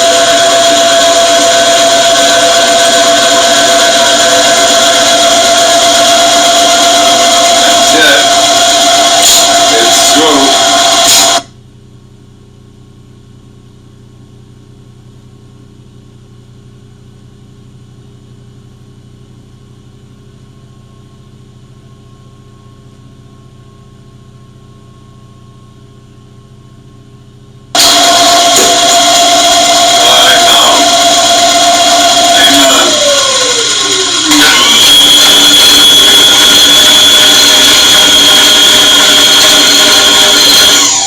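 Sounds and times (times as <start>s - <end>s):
drill motor running: 0.0s - 11.5s, 27.8s - 41.0s.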